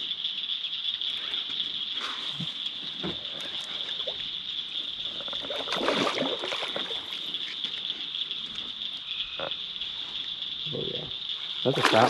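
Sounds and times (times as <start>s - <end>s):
night insects buzzing: 0.0s - 12.0s
water splashing: 5.1s - 7.6s, 11.6s - 12.0s.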